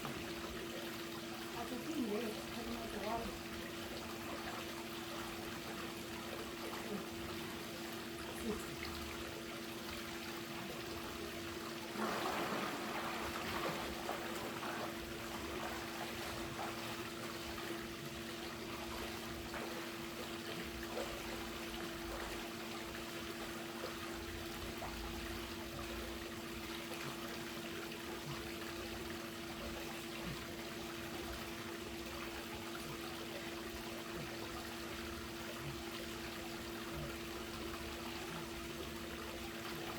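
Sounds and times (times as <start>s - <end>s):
water splashing: 0.0s - 29.4s
pool water trickling and lapping: 0.0s - 39.9s.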